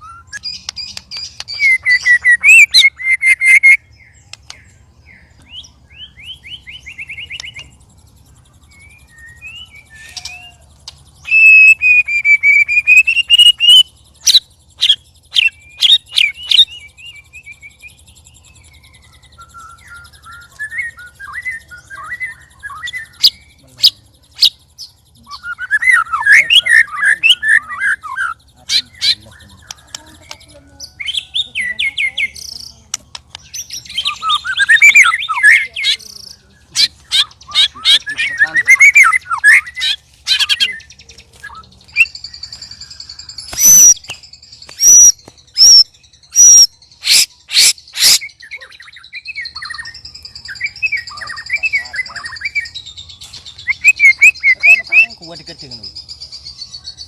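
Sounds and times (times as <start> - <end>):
sharp clicking bird notes: 0.0 - 4.8, 6.9 - 7.9, 8.7 - 17.1, 17.8 - 48.4, 49.5 - 56.0
birds singing loudly: 0.0 - 57.0.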